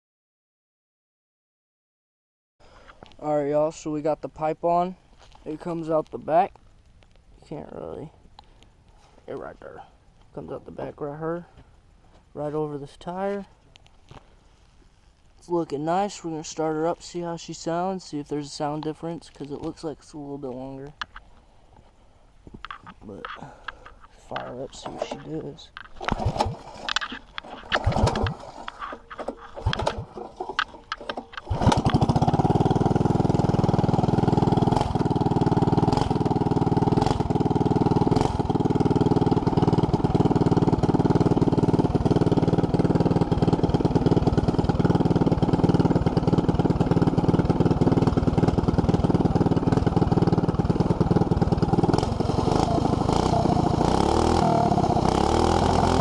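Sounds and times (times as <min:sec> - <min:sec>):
exhaust ticking: 0:23.1 - 0:56.0
small engine starting attempts: 0:25.8 - 0:56.0
small engine running steadily: 0:26.0 - 0:56.0.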